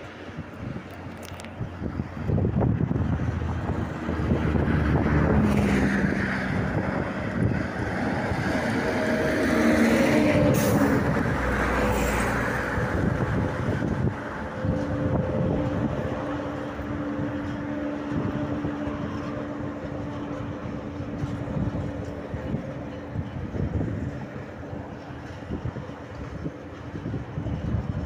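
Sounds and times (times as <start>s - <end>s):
diesel locomotive engine droning: 0.0s - 28.0s.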